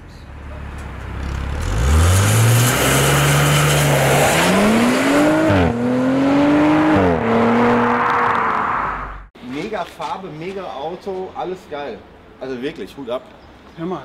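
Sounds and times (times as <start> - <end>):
car engine accelerating: 1.0 - 9.3.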